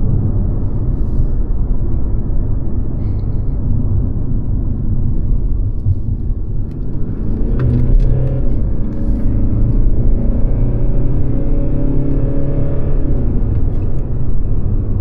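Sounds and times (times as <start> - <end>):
road noise: 0.0 - 15.0
car engine accelerating: 4.1 - 15.0.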